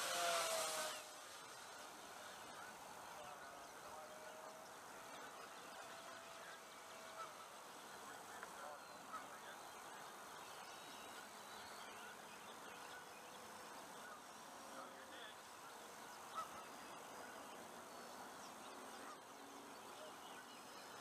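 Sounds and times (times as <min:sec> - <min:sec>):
model airplane motor whine: 0:00.0 - 0:01.2
low background hiss: 0:00.0 - 0:21.0.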